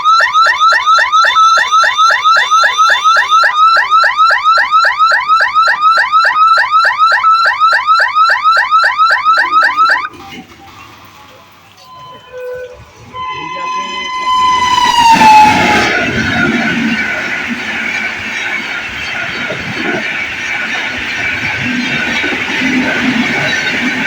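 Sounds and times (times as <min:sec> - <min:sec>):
steady high tone: 0:00.0 - 0:10.1, 0:11.7 - 0:17.6
level crossing warning siren chirping: 0:00.0 - 0:24.0.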